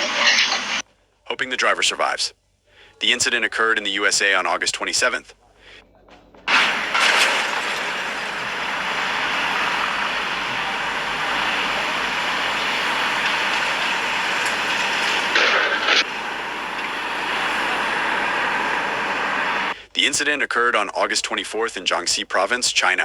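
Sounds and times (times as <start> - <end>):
rushing vehicle noise: 6.2 - 19.8.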